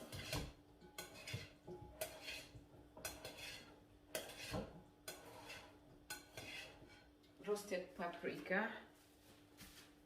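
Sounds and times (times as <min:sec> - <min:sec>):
utensils tossing salad in bowl: 0:00.0 - 0:07.1.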